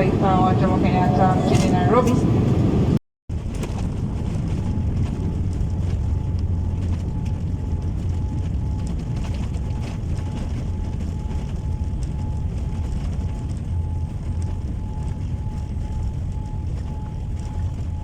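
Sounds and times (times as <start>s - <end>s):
jet airliner cabin rumble: 0.0s - 18.0s.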